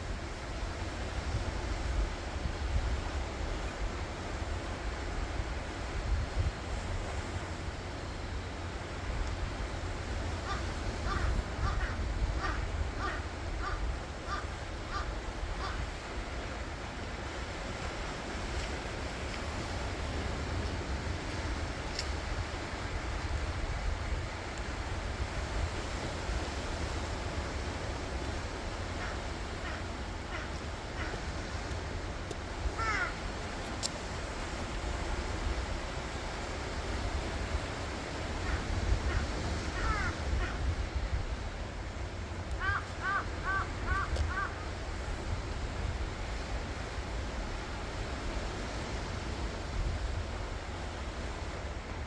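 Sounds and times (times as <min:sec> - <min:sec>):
surf washing on shore: 0:00.0 - 0:52.0
wind rumble on microphone: 0:00.0 - 0:52.0
bird harsh calls: 0:10.5 - 0:15.8, 0:32.8 - 0:33.1, 0:38.5 - 0:40.6.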